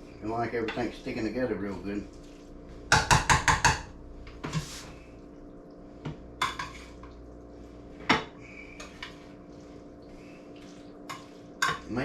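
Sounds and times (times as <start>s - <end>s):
faint steady hum: 0.0s - 12.0s
spoon clanking against a pot: 6.4s - 6.9s, 11.1s - 11.9s.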